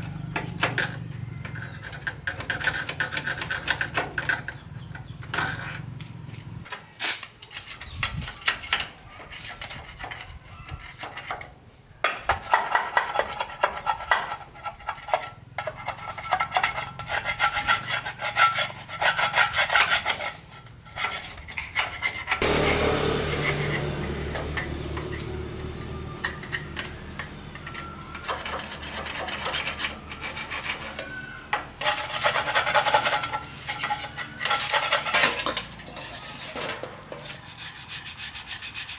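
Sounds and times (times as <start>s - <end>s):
rubbing and scraping strokes: 7.0s - 11.5s, 12.4s - 25.4s, 26.1s - 38.9s.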